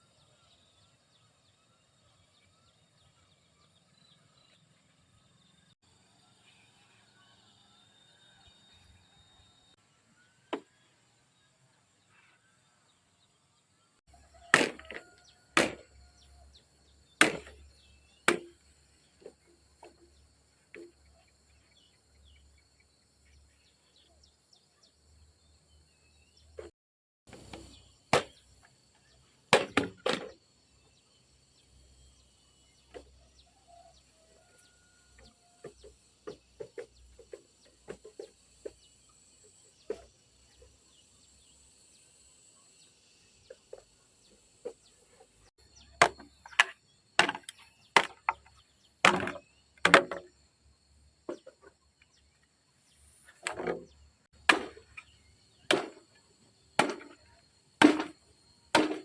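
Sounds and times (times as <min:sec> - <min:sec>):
tool striking wood: 0:14.5 - 0:15.9, 0:17.2 - 0:17.7, 0:18.3 - 0:18.6, 0:27.3 - 0:28.4, 0:29.6 - 0:30.4, 0:46.0 - 0:50.4, 0:53.4 - 0:55.0, 0:55.7 - 0:56.0, 0:56.8 - 0:57.2, 0:57.8 - 0:59.0.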